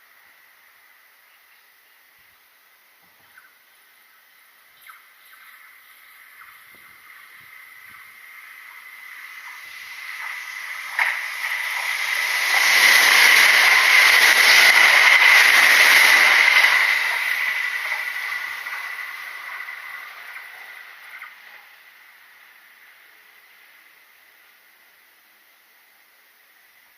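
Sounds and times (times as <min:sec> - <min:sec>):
electric train passing: 0:05.4 - 0:24.7.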